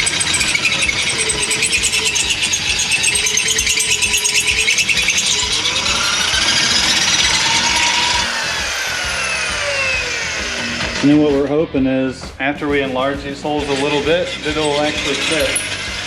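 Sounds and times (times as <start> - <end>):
electric drill drilling metal: 0.0 - 11.2, 13.6 - 16.0.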